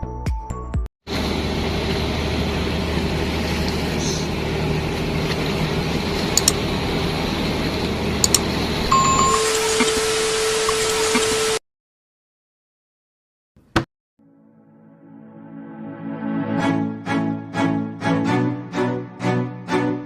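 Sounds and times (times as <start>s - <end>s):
boat engine running: 1.1s - 9.8s.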